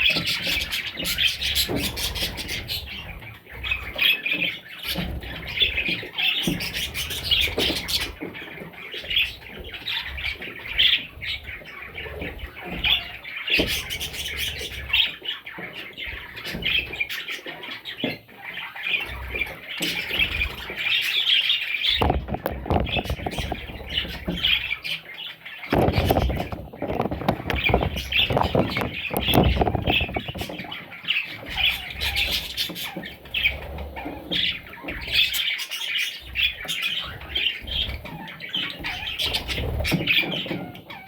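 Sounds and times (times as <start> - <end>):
budgerigars chirping and squawking: 0.0 - 41.0
low thumps: 21.9 - 24.4, 25.7 - 30.8.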